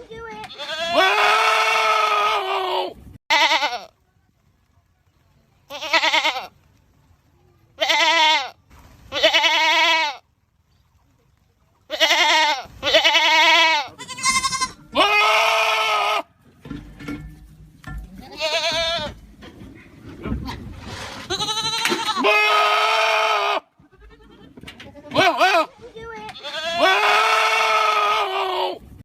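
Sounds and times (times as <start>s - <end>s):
goats screaming: 0.6s - 3.8s, 11.9s - 16.3s, 21.3s - 24.4s, 26.4s - 28.8s.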